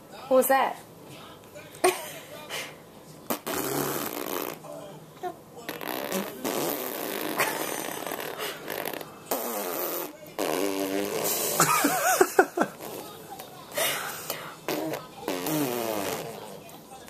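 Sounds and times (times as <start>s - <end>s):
fart-like sputtering: 3.3s - 4.6s, 5.7s - 11.7s, 12.6s - 13.1s, 14.7s - 16.6s.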